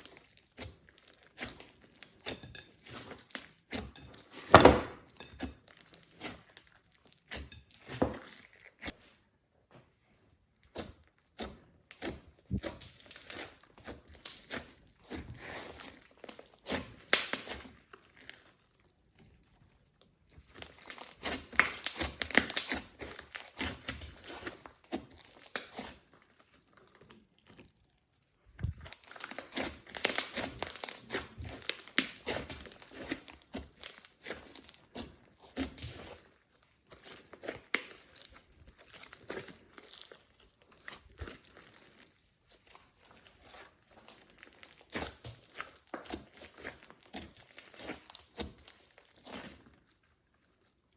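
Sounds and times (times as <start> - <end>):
slime squishing and popping: 10.6 - 18.6, 20.4 - 26.3, 28.6 - 42.0, 42.6 - 49.6.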